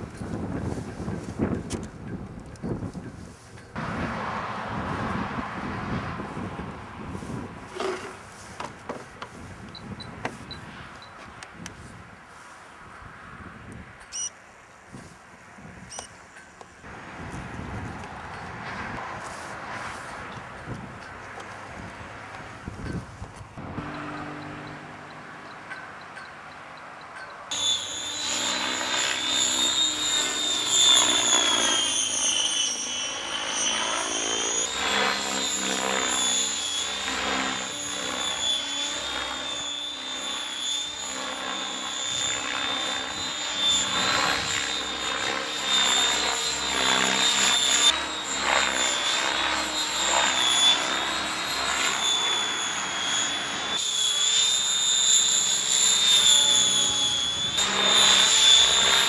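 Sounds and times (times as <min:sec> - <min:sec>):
rc helicopter motor whine: 0:14.1 - 0:14.3, 0:15.8 - 0:59.0
rotor blades whirring: 0:23.6 - 0:59.0.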